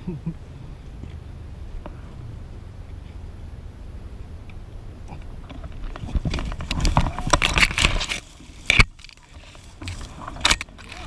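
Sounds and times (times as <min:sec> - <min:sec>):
wind rumble on microphone: 0:00.0 - 0:11.0
bike rattling over rough ground: 0:04.6 - 0:11.0.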